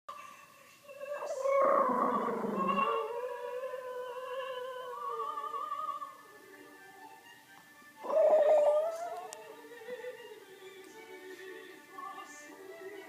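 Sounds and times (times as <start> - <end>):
music from a tv: 0.1 - 13.0
dog howling: 1.1 - 5.6, 8.0 - 9.4.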